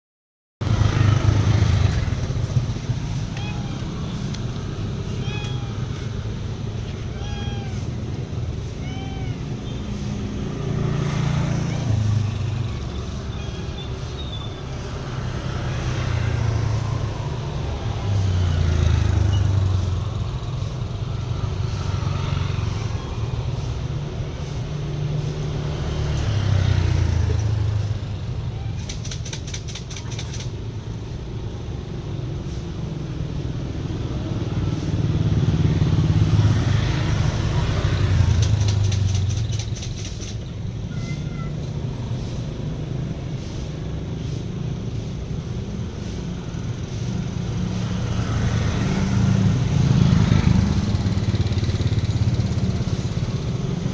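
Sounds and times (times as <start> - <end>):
traffic engine rumble: 0.6 - 53.9.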